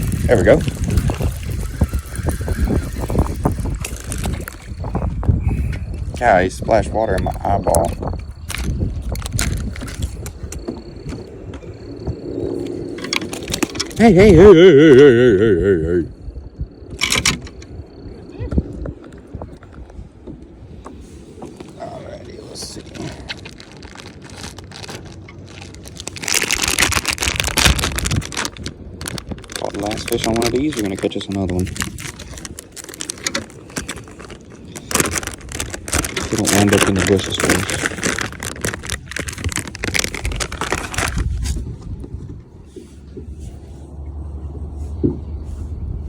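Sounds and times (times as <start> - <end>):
plastic packaging crinkling: 0.0 - 5.2, 7.3 - 10.5, 22.3 - 41.8
wind buffeting microphone: 0.0 - 46.0
clicks and rattles: 12.9 - 14.1, 16.9 - 17.7, 22.9 - 41.6.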